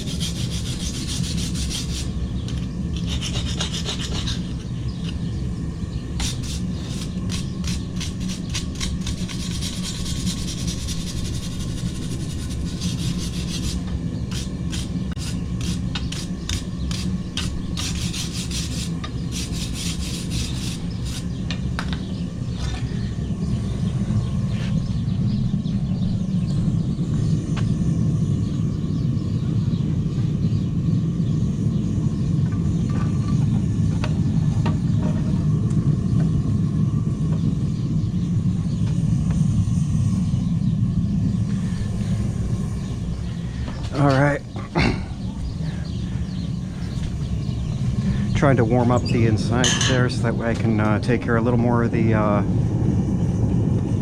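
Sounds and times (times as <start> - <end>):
wire brush scraping steel: 0.0 - 5.3, 6.2 - 21.4
low rumble: 20.6 - 54.0.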